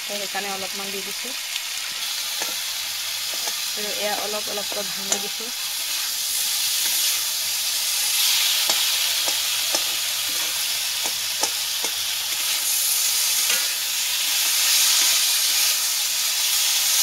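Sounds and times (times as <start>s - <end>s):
food sizzling in oil: 0.0s - 17.0s
spatula knocking on pan: 8.7s - 10.0s.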